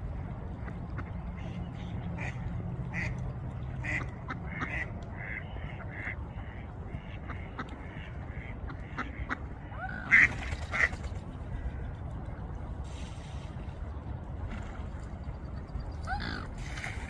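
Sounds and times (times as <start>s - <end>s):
ducks quacking: 0.6s - 11.0s.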